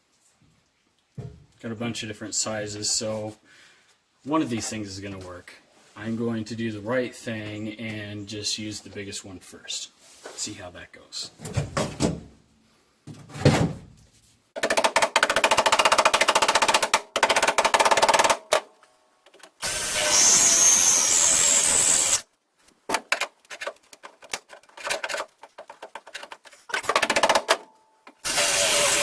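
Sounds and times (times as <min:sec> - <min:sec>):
drill chattering in sheet steel: 0:19.6 - 0:22.2, 0:28.2 - 0:29.0
drill hissing with high whine: 0:19.6 - 0:22.2, 0:28.3 - 0:29.0.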